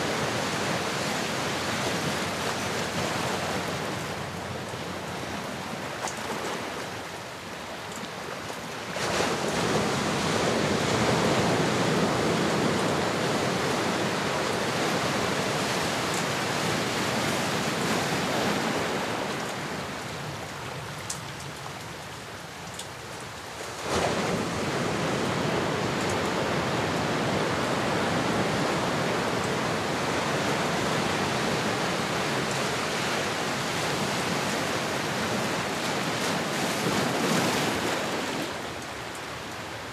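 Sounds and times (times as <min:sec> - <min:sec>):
ocean waves on shore: 0:00.0 - 0:39.9.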